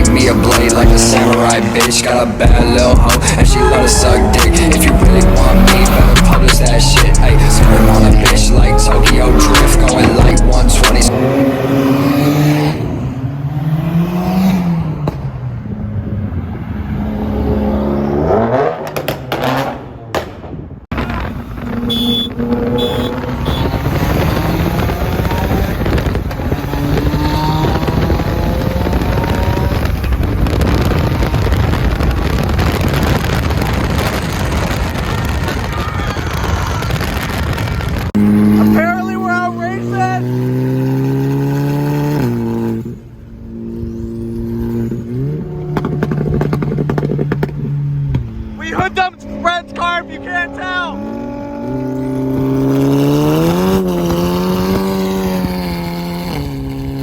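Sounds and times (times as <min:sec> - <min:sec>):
car engines revving: 0:00.0 - 0:57.0
road noise: 0:00.0 - 0:57.0.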